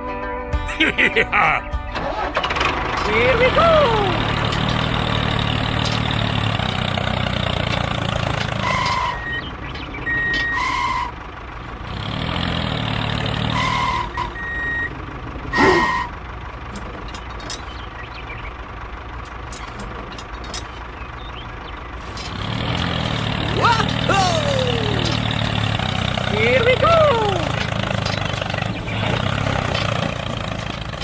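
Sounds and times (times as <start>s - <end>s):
tractor engine humming: 0.8s - 31.0s
whistle-like glide: 8.6s - 9.5s, 10.1s - 11.2s, 13.5s - 14.9s, 15.6s - 16.2s.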